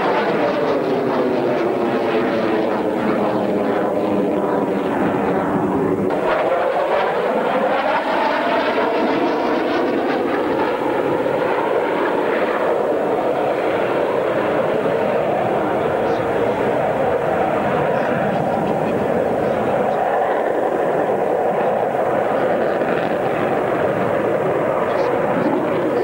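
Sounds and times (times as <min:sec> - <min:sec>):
fighter jet flying by: 0:00.0 - 0:26.0.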